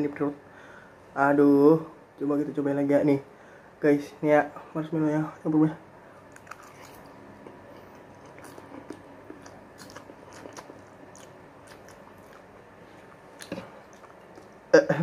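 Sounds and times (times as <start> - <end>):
person chewing noodles: 6.2 - 14.7.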